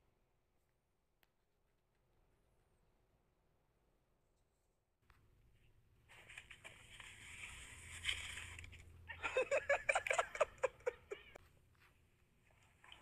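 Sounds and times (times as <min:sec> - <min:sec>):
person laughing: 0:09.1 - 0:11.4.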